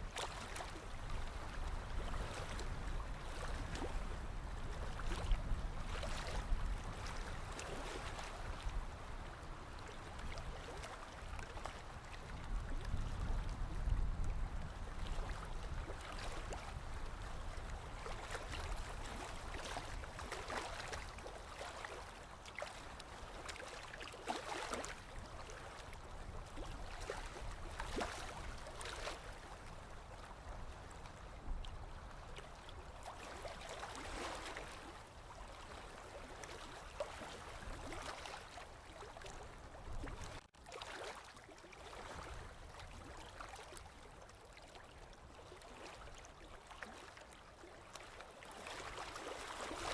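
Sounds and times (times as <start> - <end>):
sea water lapping against shore: 0.1 - 49.9.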